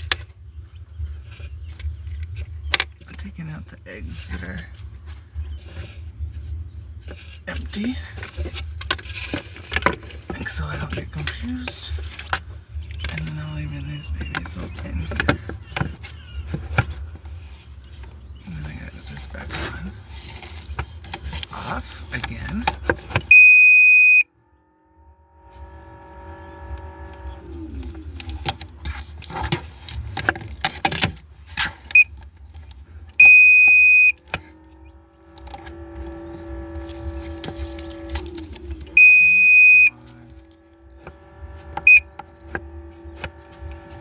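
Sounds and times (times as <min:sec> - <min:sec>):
handling clicks and knocks: 0:07.0 - 0:23.6, 0:26.6 - 0:44.0
steady pitched hum: 0:19.9 - 0:44.0
electronic alarm beeping: 0:23.3 - 0:24.3, 0:31.9 - 0:32.1, 0:33.2 - 0:34.3, 0:38.9 - 0:40.4, 0:41.8 - 0:42.2.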